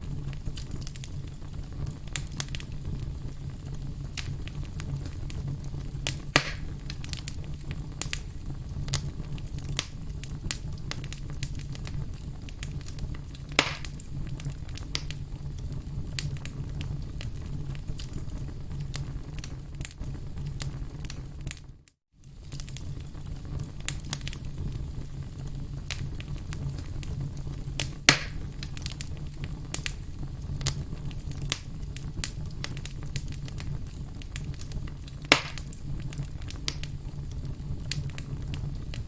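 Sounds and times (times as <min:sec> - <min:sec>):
firewood crackling: 0:00.0 - 0:39.0
low fire rumble: 0:00.0 - 0:39.0
sharp snaps and pops: 0:00.3 - 0:03.0, 0:03.8 - 0:24.7, 0:25.8 - 0:39.0.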